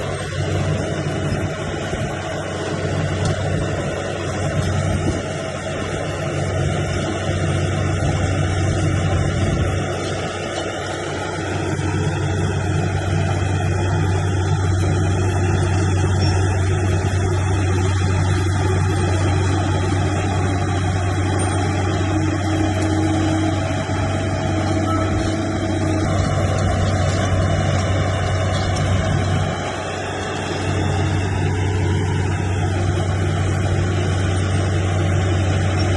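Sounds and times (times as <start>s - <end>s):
heavy diesel engine droning: 0.0s - 35.9s.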